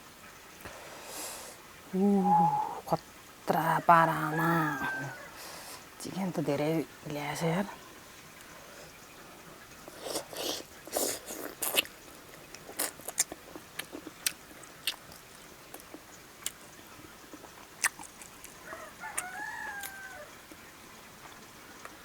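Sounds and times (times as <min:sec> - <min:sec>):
chicken calling: 0:02.0 - 0:05.8, 0:18.6 - 0:20.5
wet chewing and lip smacks: 0:09.8 - 0:16.7, 0:17.3 - 0:20.6.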